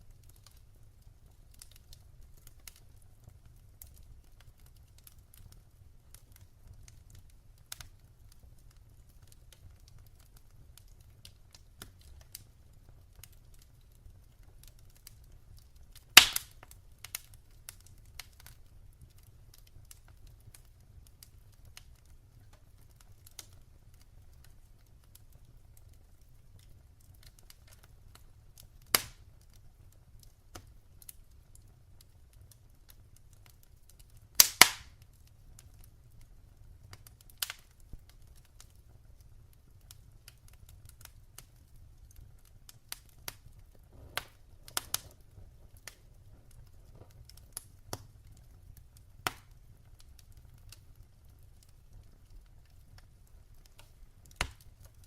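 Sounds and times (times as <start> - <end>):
wood fire crackling and popping: 0.0 - 55.0
faint low rumble: 43.4 - 47.3.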